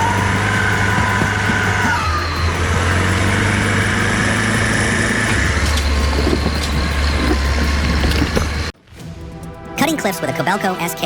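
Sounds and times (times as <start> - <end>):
diesel engine running: 0.0 - 8.8.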